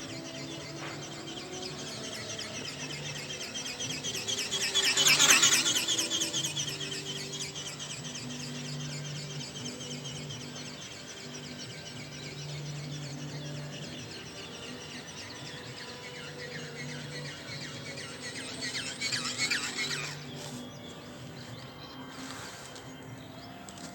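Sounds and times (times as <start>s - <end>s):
model ornithopter wings flapping: 0.9s - 9.9s, 17.6s - 23.0s.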